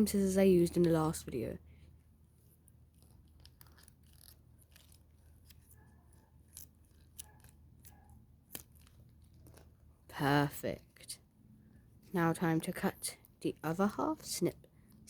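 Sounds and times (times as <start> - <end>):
scissors snipping silicone: 6.5 - 9.7.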